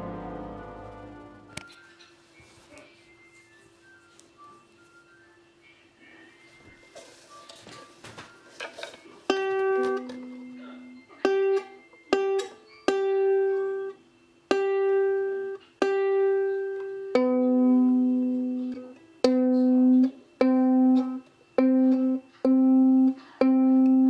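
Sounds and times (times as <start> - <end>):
ukulele plucked notes: 0.0 - 1.6.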